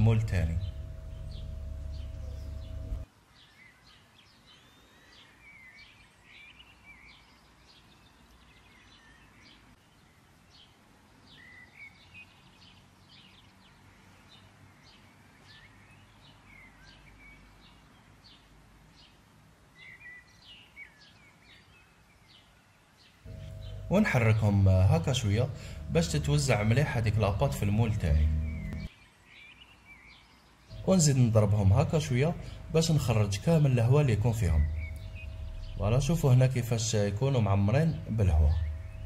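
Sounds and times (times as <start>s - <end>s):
steady low hum: 0.0s - 3.1s, 23.3s - 28.9s, 30.7s - 39.0s
small birds chirping: 0.0s - 39.0s.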